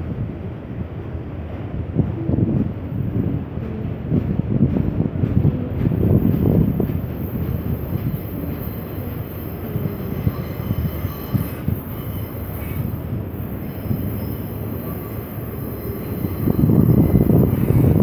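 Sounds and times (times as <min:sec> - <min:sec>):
freight train wheels rumbling: 0:00.0 - 0:18.0
high-pitched wheel squeal: 0:07.2 - 0:18.0.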